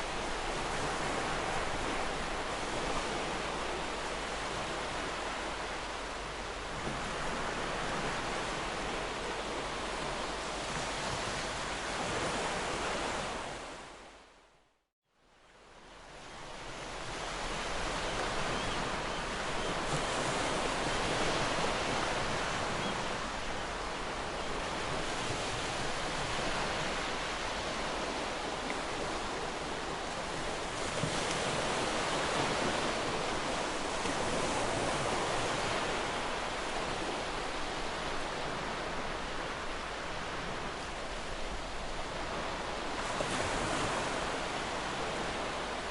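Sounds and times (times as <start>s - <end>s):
ocean waves breaking: 17.0s - 45.9s.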